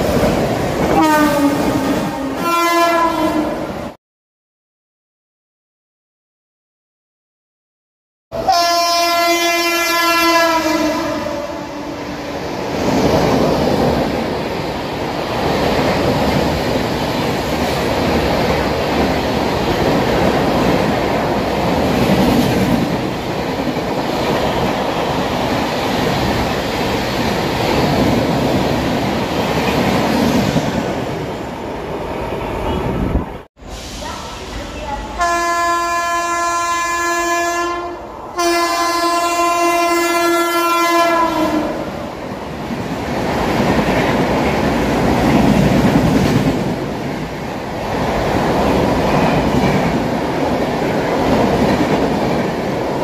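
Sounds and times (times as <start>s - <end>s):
train horn: 0.9s - 3.7s, 8.3s - 12.1s, 35.2s - 41.9s
train wheels clattering on rails: 42.7s - 53.0s.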